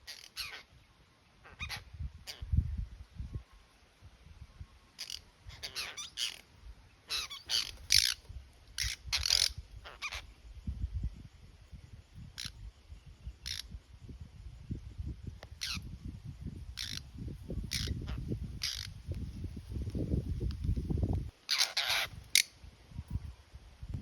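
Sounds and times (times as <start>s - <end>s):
birds harsh rasping calls: 0.0s - 0.8s, 1.4s - 2.5s, 5.0s - 10.3s, 12.4s - 12.6s, 13.4s - 13.8s, 15.6s - 15.9s, 16.8s - 19.0s, 21.4s - 22.6s.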